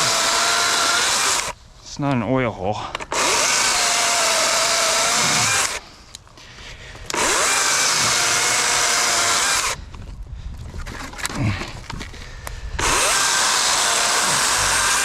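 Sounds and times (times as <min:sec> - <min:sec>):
chainsaw motor whining: 0:00.0 - 0:01.6, 0:03.1 - 0:05.8, 0:07.1 - 0:09.8, 0:12.8 - 0:15.0.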